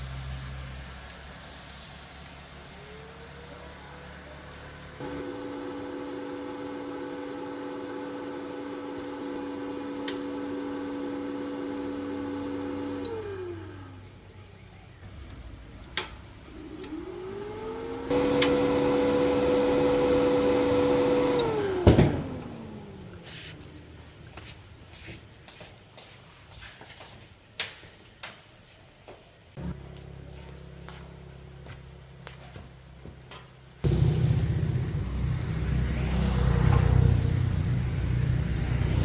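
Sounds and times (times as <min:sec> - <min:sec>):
electric motor whining: 0:04.8 - 0:14.3, 0:15.0 - 0:24.1, 0:33.8 - 0:39.0.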